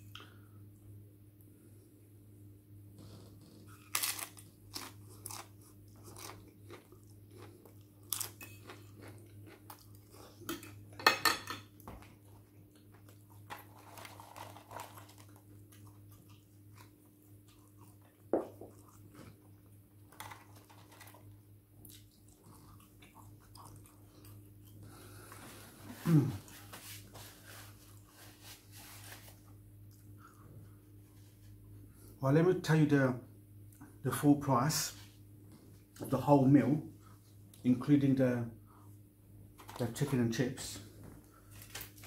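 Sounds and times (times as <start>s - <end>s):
faint steady hum: 0.0s - 42.0s
person chewing crunchy food: 3.6s - 11.0s, 12.1s - 28.2s.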